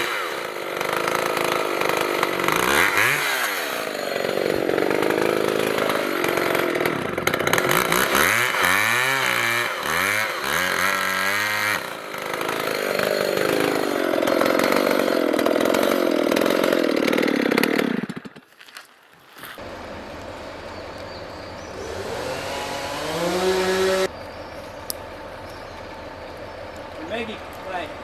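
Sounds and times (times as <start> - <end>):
chainsaw cutting timber: 0.0 - 18.9, 21.3 - 24.1.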